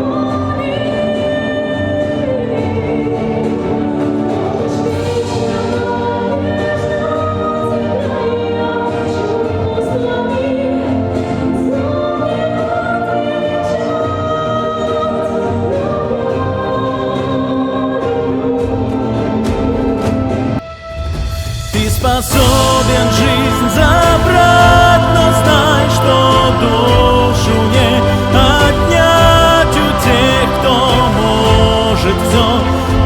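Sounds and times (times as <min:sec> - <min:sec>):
instrumental backing: 0:15.3 - 0:33.0
choir singing long notes: 0:22.3 - 0:33.0.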